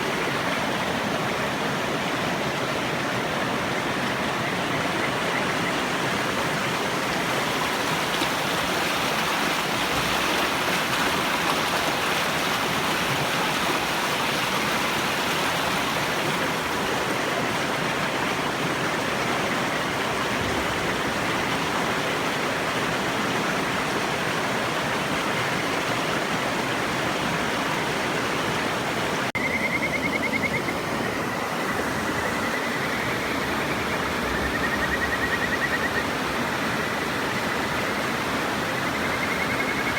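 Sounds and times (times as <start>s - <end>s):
river rushing: 0.0s - 29.3s
frog trilling: 29.4s - 30.8s, 31.6s - 36.2s.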